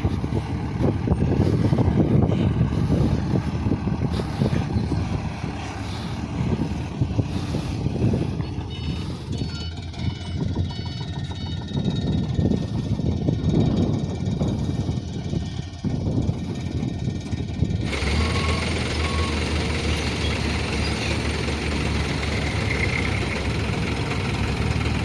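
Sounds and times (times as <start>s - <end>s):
diesel truck engine rumbling: 0.0s - 25.0s
short high tones: 8.4s - 12.0s.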